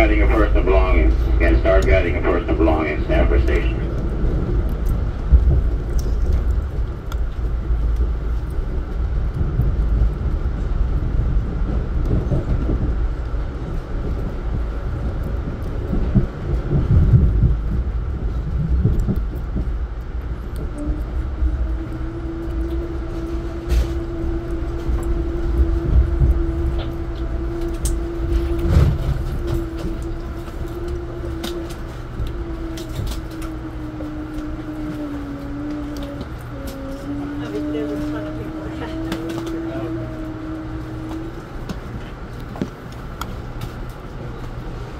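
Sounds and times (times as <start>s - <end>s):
low whine: 0.0s - 44.9s
train wheels rumbling on track: 0.0s - 44.9s.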